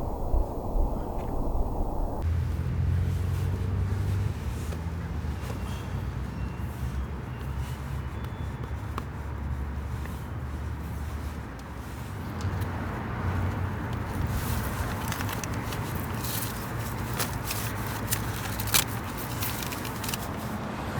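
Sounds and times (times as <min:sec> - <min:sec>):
light even hiss: 0:00.0 - 0:02.2
low rumble of road traffic: 0:00.0 - 0:20.9.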